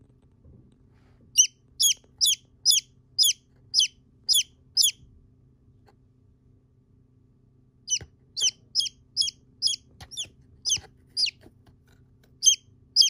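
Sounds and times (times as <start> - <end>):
small bird peeping: 1.3 - 5.1, 7.8 - 11.5, 12.3 - 13.0.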